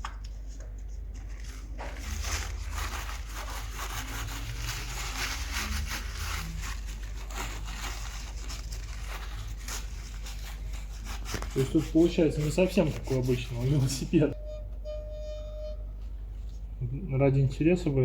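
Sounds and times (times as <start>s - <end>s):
scratchy rubbing and rustling: 0.1s - 14.4s.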